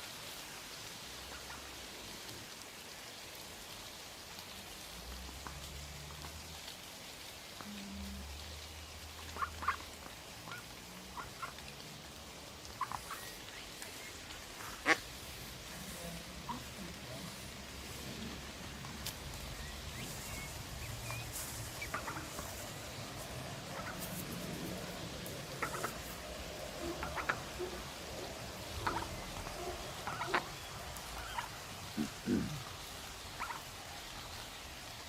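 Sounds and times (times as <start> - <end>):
ducks quacking: 9.2 - 11.7, 12.6 - 33.8.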